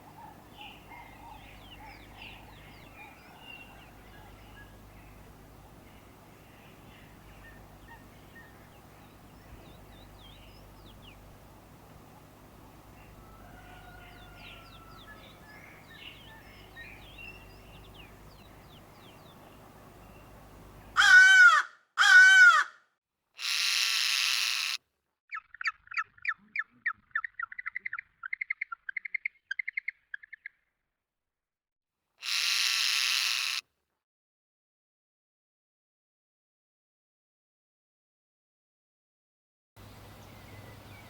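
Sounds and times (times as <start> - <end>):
low background hum: 0.0 - 21.5, 39.8 - 41.0
faint birdsong: 0.0 - 22.6, 23.4 - 30.8, 39.8 - 41.0
arching bird calls: 0.0 - 22.7, 32.2 - 33.6
harsh rasping bird call: 20.9 - 22.8, 23.4 - 24.8, 32.2 - 33.6
rapid chattering bird notes: 23.4 - 24.8, 32.2 - 33.6.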